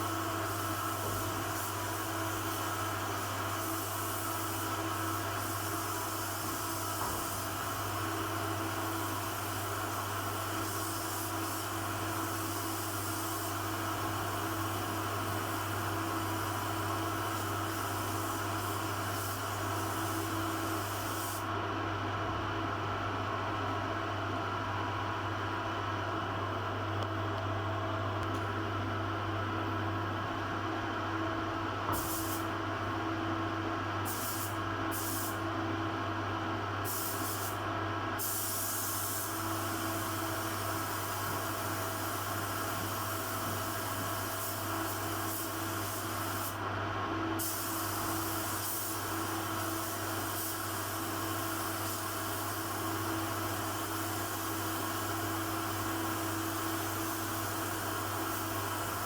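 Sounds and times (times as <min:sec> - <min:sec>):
air tool hissing: 0:10.6 - 0:13.6, 0:17.3 - 0:21.5, 0:31.9 - 0:32.5, 0:34.1 - 0:35.4, 0:36.8 - 0:37.6, 0:38.2 - 0:46.6, 0:47.4 - 0:52.6.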